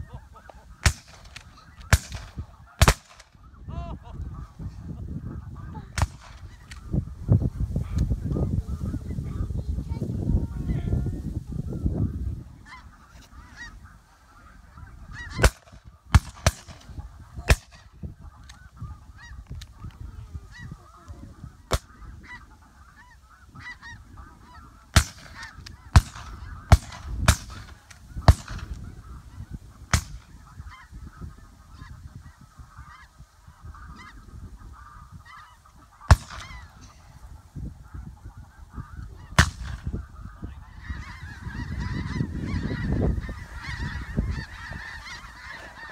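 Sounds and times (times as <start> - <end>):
snow geese calling: 0.0 - 45.9
shotgun shots: 0.8 - 3.3, 15.4 - 16.9, 25.0 - 25.4, 26.0 - 28.7, 36.1 - 36.6, 39.4 - 39.8.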